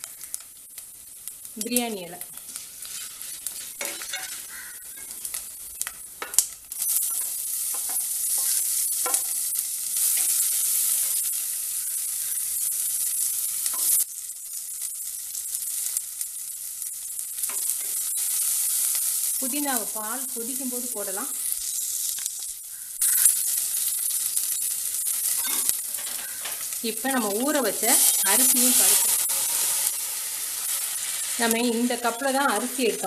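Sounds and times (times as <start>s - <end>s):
spices sizzling in hot oil: 0.0s - 33.0s
wooden spatula scraping a pot: 2.5s - 5.2s.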